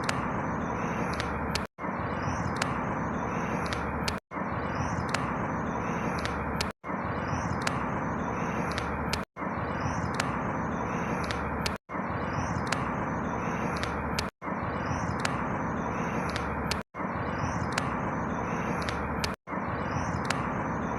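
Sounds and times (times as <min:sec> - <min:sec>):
high bird chirps: 0:00.0 - 0:20.9.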